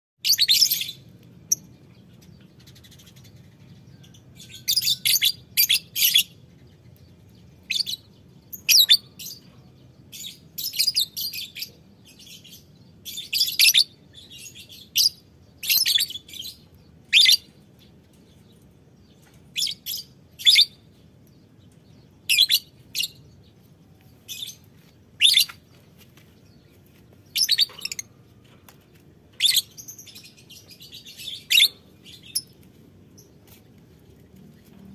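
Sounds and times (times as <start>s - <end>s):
lovebirds chattering: 21.6s - 28.2s.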